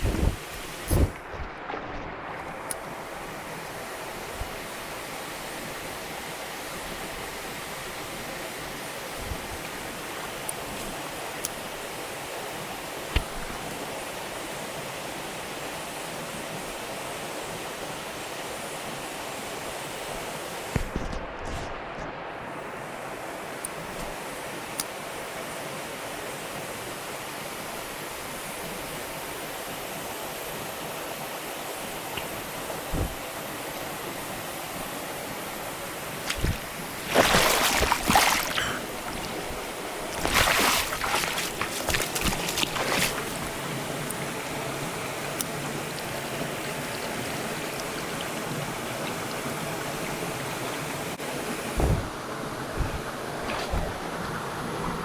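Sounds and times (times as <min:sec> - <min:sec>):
stream water rushing: 0:00.0 - 0:55.0
low thump: 0:32.9 - 0:33.2, 0:51.8 - 0:52.2, 0:52.8 - 0:54.0.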